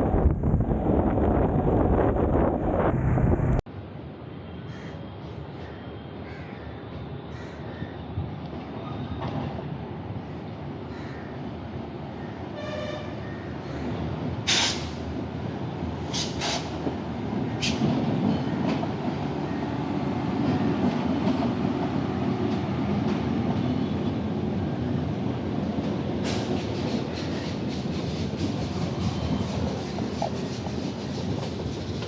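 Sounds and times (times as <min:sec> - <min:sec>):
road and traffic rumble: 0:00.0 - 0:06.2.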